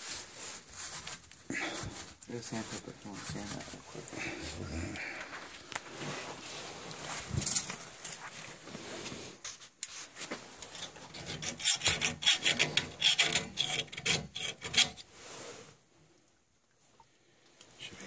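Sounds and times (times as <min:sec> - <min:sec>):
sandpaper scraping metal: 0:11.2 - 0:15.0.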